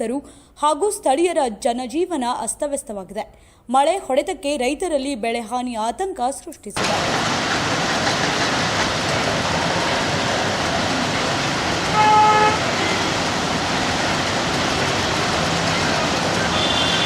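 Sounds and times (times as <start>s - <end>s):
heavy rain: 6.8s - 17.0s
street traffic: 6.8s - 17.0s
vehicle horn honking: 11.9s - 13.2s, 16.4s - 17.0s.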